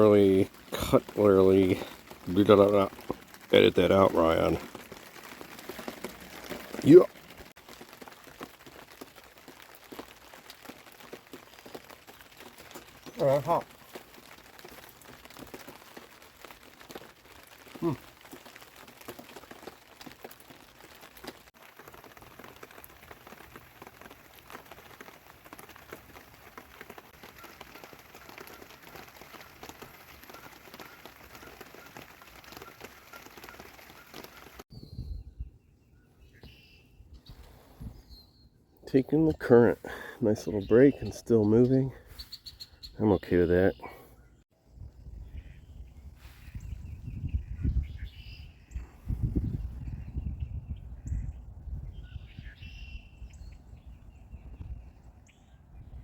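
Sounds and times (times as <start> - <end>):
light rain dripping: 0.0 - 34.7, 38.8 - 42.5
wind rumbling on microphone: 34.7 - 35.8, 44.6 - 56.0.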